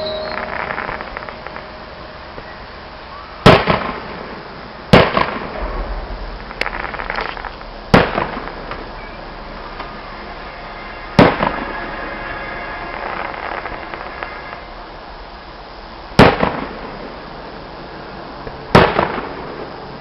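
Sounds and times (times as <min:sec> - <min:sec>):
fireworks bangs echoing: 0:00.2 - 0:01.8, 0:03.4 - 0:15.0, 0:15.8 - 0:17.9, 0:18.5 - 0:20.0.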